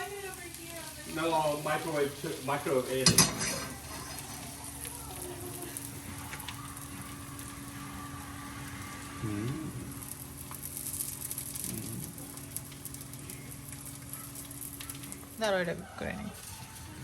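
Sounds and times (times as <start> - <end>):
batter sizzling in a pan: 0.0 - 17.0
faint murmur of voices: 3.0 - 8.1
low steady hum: 3.2 - 16.4.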